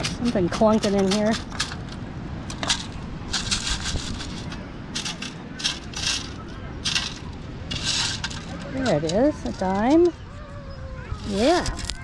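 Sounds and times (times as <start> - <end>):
sand sifting through metal scoop: 2.6 - 9.7.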